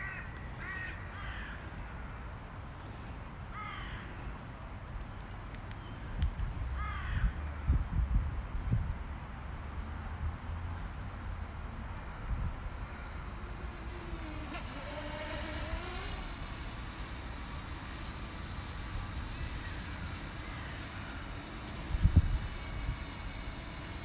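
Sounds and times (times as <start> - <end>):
wind rumbling on microphone: 6.0 - 9.3, 18.6 - 24.0
motor hum wavering: 9.6 - 24.0.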